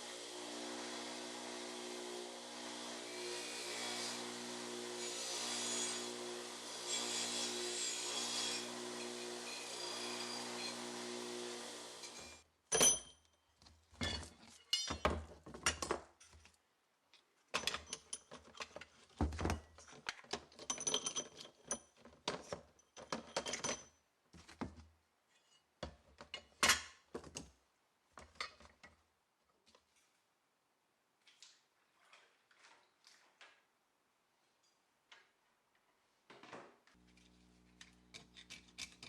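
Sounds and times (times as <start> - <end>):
metal parts clinking and knocking: 17.5 - 18.9, 19.8 - 23.9.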